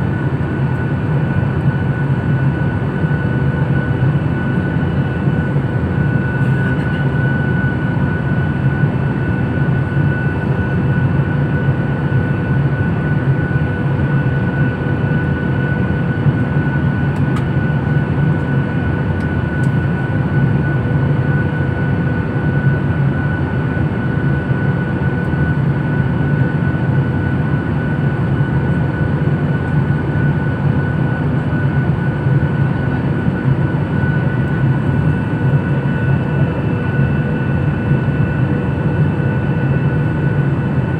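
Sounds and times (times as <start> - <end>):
airliner engine drone: 0.0 - 40.9.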